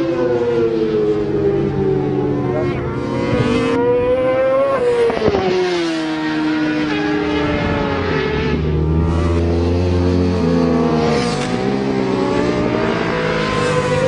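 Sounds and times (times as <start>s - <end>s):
motorcycle engines revving: 0.0s - 14.0s.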